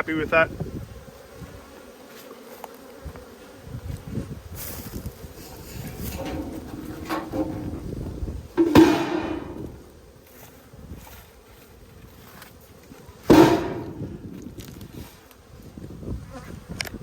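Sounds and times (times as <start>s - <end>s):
heavy ringing knocks: 6.1s - 7.9s, 8.6s - 9.9s, 13.3s - 14.2s.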